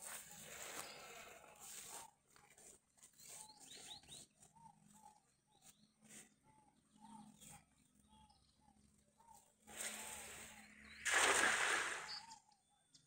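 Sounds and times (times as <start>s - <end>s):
faint bird calls: 0.0s - 13.0s
higher bird chirps: 8.1s - 12.6s.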